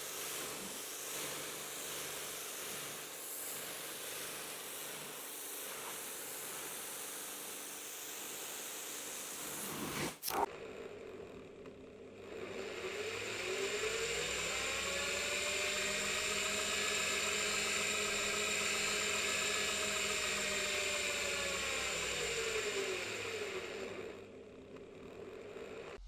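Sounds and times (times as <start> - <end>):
reversed motor whirring: 12.2 - 26.0.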